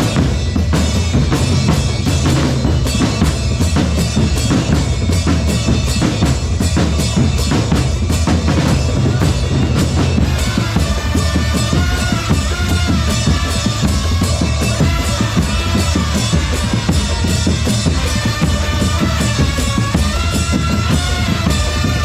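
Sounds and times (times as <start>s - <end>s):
snare and bass drums: 0.0s - 22.0s.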